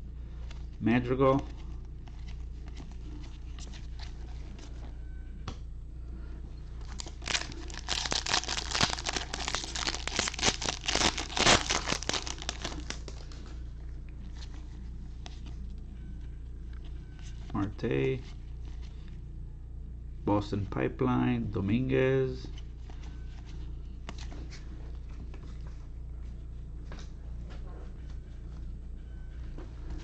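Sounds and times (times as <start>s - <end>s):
foil wrapper crinkling and tearing: 6.8s - 13.4s.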